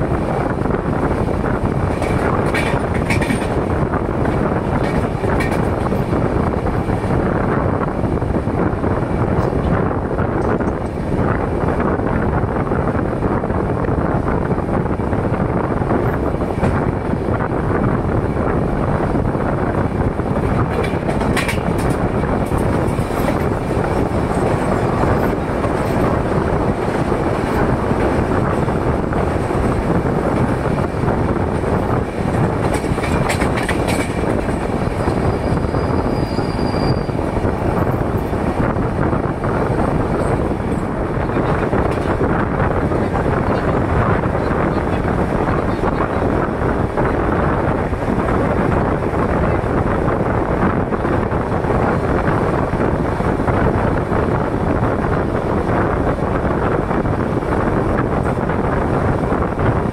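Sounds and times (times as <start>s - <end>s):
train rumbling and rattling: 0.0s - 59.9s
high squeal: 35.0s - 37.2s.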